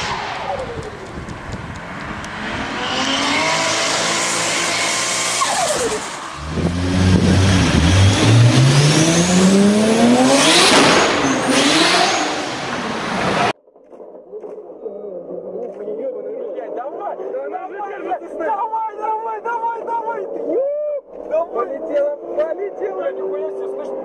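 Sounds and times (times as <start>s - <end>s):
car engine accelerating hard: 0.0s - 13.6s
sports car engine revving past: 1.8s - 13.5s.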